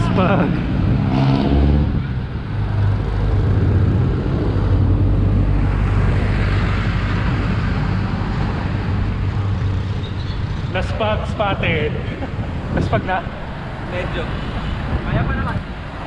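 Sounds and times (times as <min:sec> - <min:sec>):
road noise while cycling: 0:00.0 - 0:16.0
traffic: 0:00.0 - 0:16.0
wind noise on microphone: 0:00.0 - 0:16.0.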